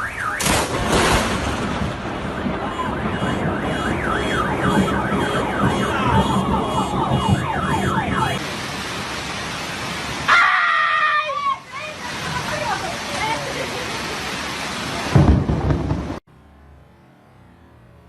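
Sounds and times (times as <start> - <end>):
car alarm warbling: 0.0 - 0.6, 2.0 - 8.4.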